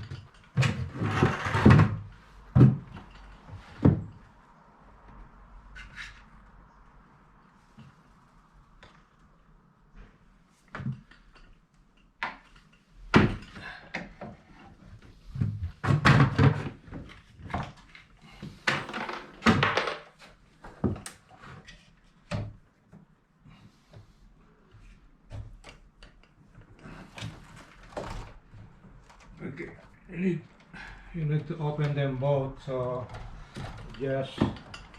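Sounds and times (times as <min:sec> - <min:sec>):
window frames knocking and thudding: 0:00.0 - 0:04.3, 0:12.2 - 0:14.4, 0:15.3 - 0:17.8, 0:18.5 - 0:21.1
rubbing or scraping noises: 0:00.0 - 0:04.4.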